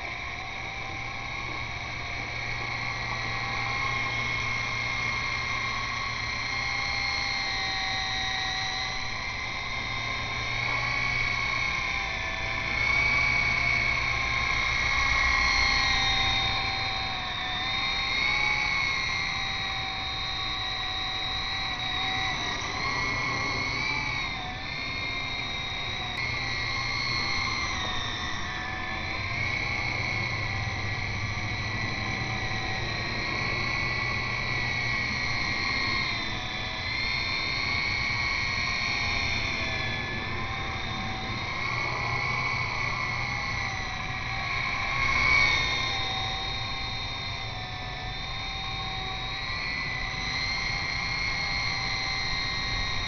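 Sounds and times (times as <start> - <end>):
rc helicopter motors whining: 0.0 - 53.0
low wind rumble: 19.8 - 50.3.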